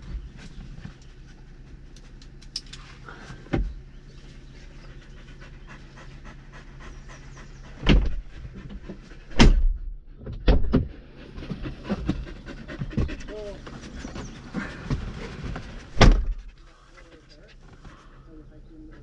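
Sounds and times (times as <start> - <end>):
dog panting: 4.0 - 9.4, 11.2 - 19.0
loud sudden bumps: 7.8 - 13.3, 13.9 - 16.6.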